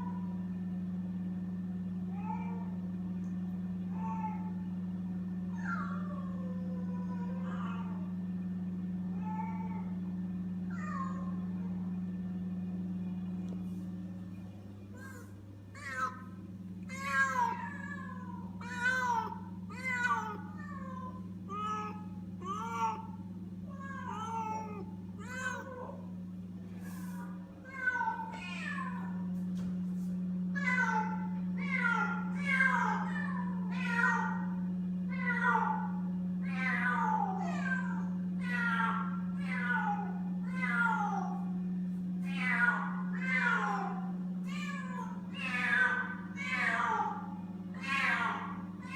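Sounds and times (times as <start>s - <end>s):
steady low hum: 0.0s - 48.9s
kittens meowing: 5.5s - 8.1s, 10.7s - 11.7s, 15.0s - 26.1s, 26.8s - 29.3s, 30.6s - 41.6s, 42.2s - 48.9s.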